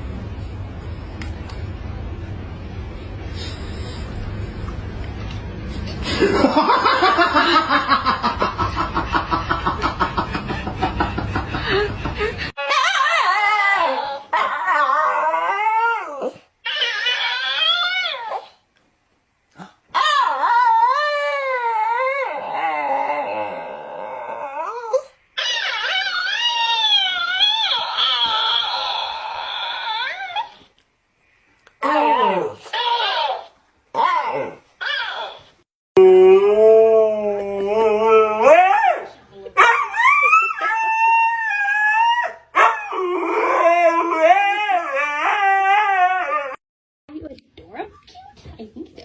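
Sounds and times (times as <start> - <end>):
dog howling and whining: 12.6 - 18.6, 19.9 - 30.7, 31.8 - 46.6.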